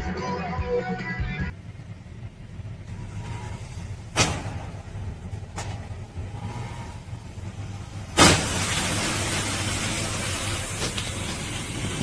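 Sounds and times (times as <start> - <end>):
car engine and road rumble: 0.0 - 12.0
loud bang: 4.1 - 6.9, 8.1 - 9.7
sharp knocks: 4.2 - 4.8.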